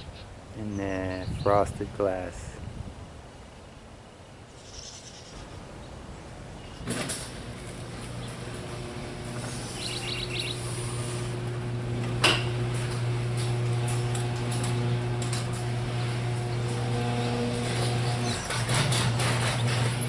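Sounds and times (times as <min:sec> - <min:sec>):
low motor hum: 0:06.9 - 0:20.0.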